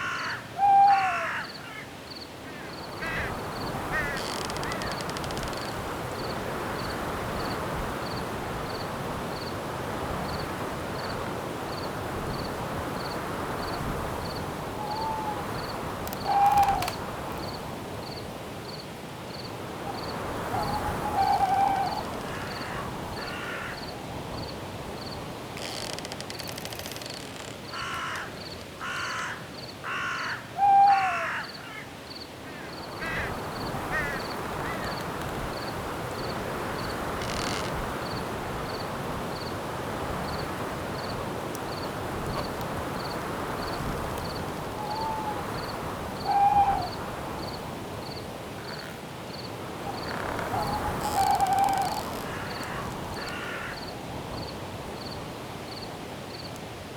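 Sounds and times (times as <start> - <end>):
harsh crow-like caws: 0.0 - 5.7, 20.4 - 23.9, 27.6 - 35.1, 48.6 - 49.0, 49.9 - 53.9
cricket chirping: 0.0 - 9.6, 10.2 - 30.4, 31.0 - 39.6, 40.2 - 56.5
wind: 0.0 - 56.9.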